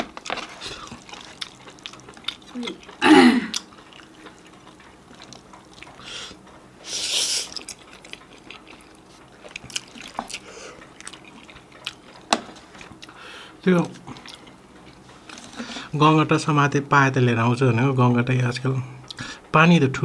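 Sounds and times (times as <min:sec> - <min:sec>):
wet chewing: 0:00.1 - 0:13.2, 0:13.9 - 0:15.7.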